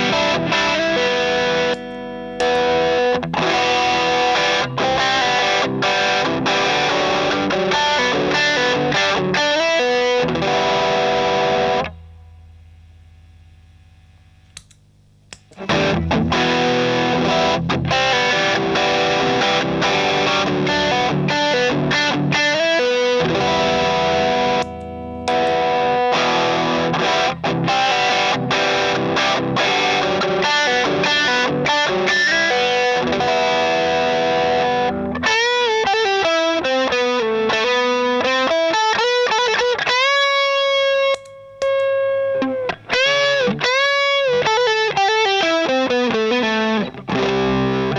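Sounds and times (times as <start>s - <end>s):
overdriven electric guitar: 0.0s - 12.4s, 15.3s - 47.9s.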